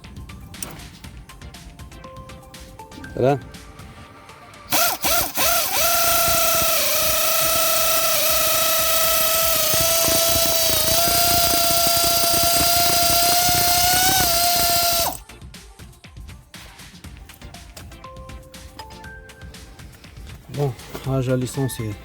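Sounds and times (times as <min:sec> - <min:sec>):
power tool motor whining: 0:04.7 - 0:15.2.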